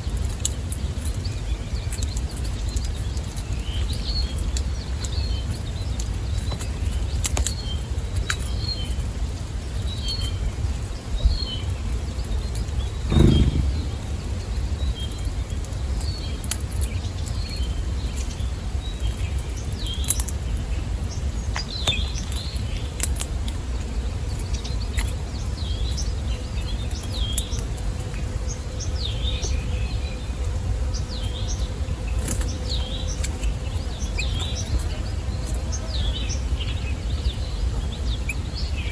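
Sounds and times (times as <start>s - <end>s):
small songbirds chirping: 0.0s - 38.9s
heavy thump: 13.1s - 14.2s
sharp clicks: 13.1s - 14.2s
steady low rumble: 13.1s - 15.0s.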